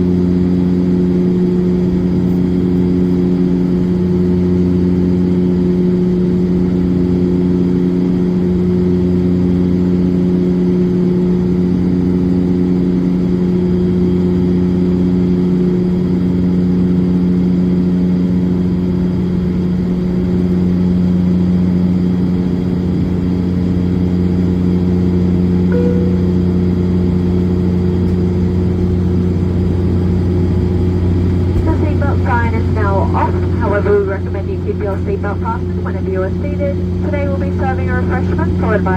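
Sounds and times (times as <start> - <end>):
turboprop drone in cabin: 0.0 - 38.9
short high tone: 25.7 - 26.9.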